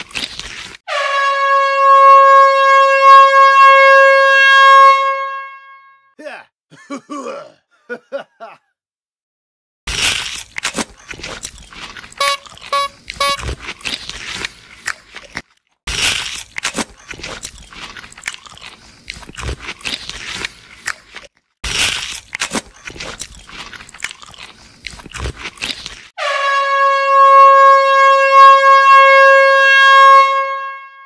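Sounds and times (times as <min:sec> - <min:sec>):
cartoon crunching and chewing: 0:00.0 - 0:00.8, 0:09.9 - 0:26.2
short beeps: 0:12.2 - 0:13.4.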